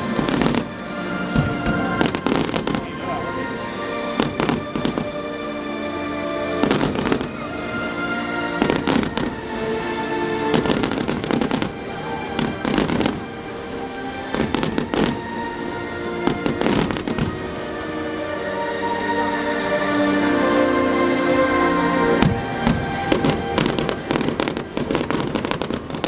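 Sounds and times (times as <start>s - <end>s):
fireworks banging and crackling: 0.0s - 3.5s, 4.1s - 5.3s, 6.2s - 7.8s, 8.6s - 15.4s, 16.2s - 17.6s, 22.2s - 26.0s
background music: 0.0s - 26.0s.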